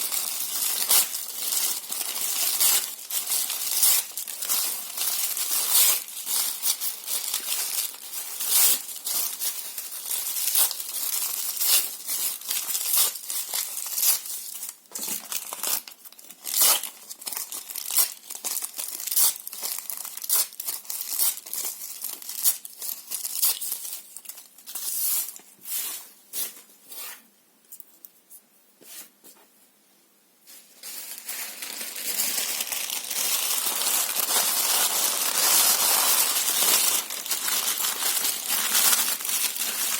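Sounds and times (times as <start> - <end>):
paper tearing and crumpling: 0.0 - 25.4, 30.8 - 39.9.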